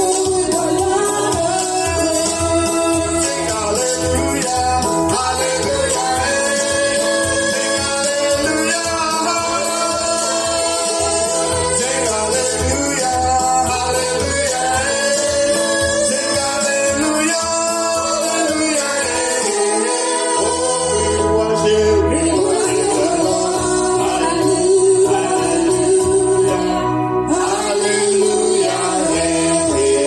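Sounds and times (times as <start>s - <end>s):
band with steady bass line: 0.0s - 30.0s
people singing gospel: 0.0s - 30.0s.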